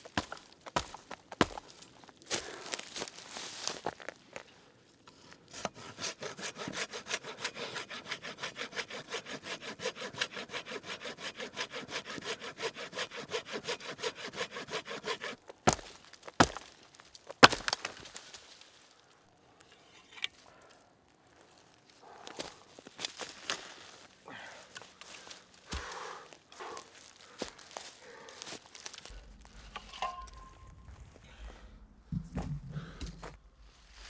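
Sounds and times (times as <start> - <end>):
hand saw cutting wood: 5.1 - 16.6, 17.4 - 18.0.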